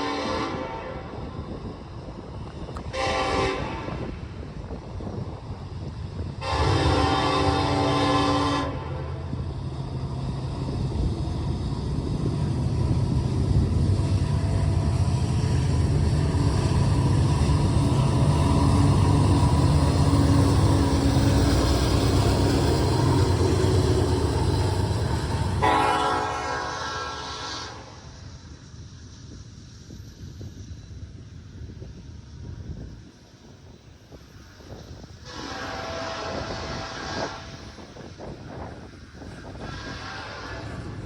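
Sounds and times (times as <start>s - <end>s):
locomotive horn blasts: 0.0s - 1.2s, 2.9s - 4.2s, 6.4s - 9.3s, 25.6s - 28.0s, 35.3s - 37.6s, 39.6s - 41.0s
wind on microphone: 0.0s - 25.8s, 29.2s - 41.0s
passing train rumble: 0.0s - 41.0s.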